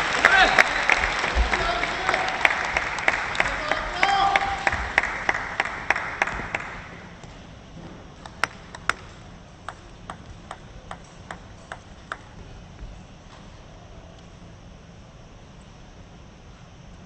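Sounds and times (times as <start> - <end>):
applause: 0.0 - 7.0
table tennis ball bouncing: 8.2 - 12.5.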